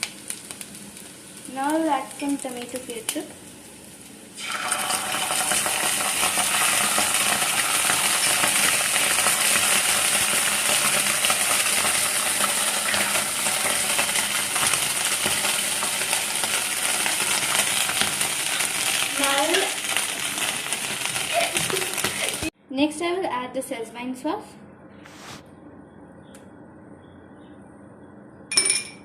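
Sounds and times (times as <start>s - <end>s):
oil sizzling in a frying pan: 0.0s - 22.5s.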